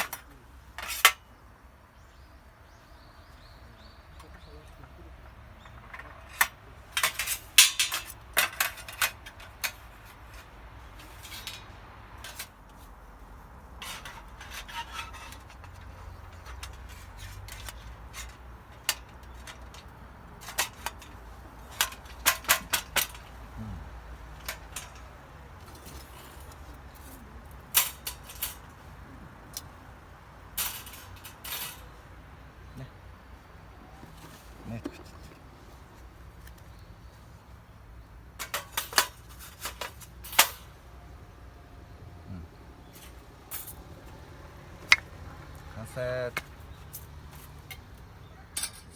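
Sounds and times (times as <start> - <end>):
metal objects clinking: 0.0 - 1.2, 5.6 - 12.6, 13.8 - 23.6, 24.2 - 28.9, 30.5 - 32.0, 38.4 - 40.9, 42.8 - 48.9.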